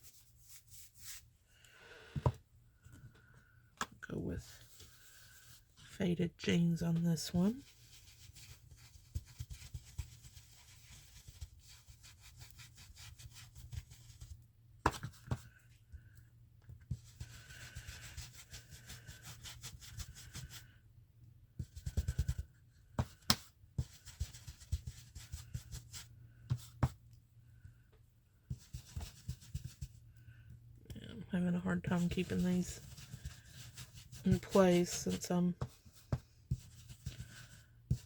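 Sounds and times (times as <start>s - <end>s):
brush scratching on paper: 0.0s - 1.3s, 7.4s - 14.4s, 16.9s - 20.7s, 21.6s - 22.4s, 23.8s - 26.9s, 28.5s - 30.0s, 31.8s - 38.0s.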